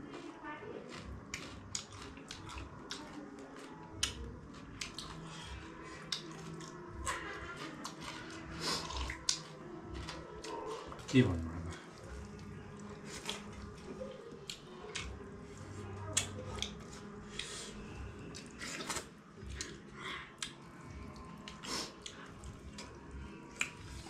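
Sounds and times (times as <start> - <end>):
wet chewing: 0.8 - 24.0
lip smacks: 21.2 - 24.0.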